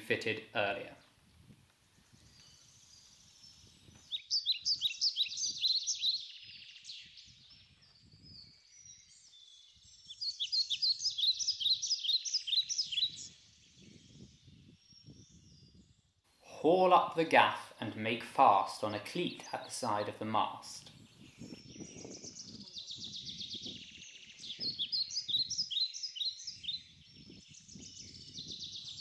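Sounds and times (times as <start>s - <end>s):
songbird twittering: 0.0s - 16.1s, 19.0s - 29.0s.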